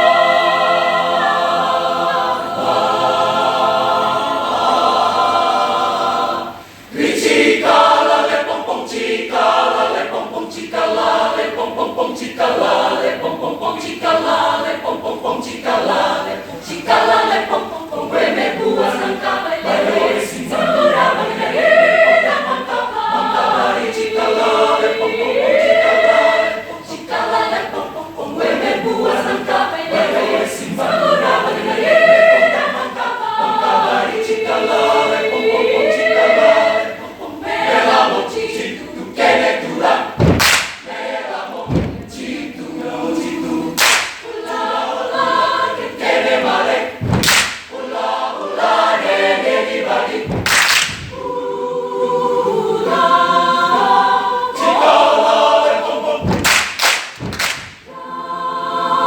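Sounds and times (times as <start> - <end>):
choir singing a cappella: 0.0 - 59.0
sharp percussive hits: 40.2 - 41.0, 47.0 - 47.8, 50.3 - 51.3, 56.2 - 57.9.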